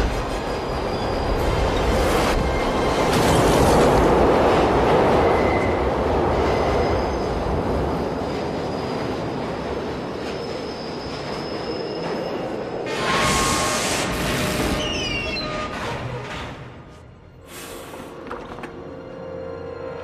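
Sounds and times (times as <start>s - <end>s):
subway train rushing past: 0.0s - 15.0s
wheel squeals: 8.2s - 16.6s.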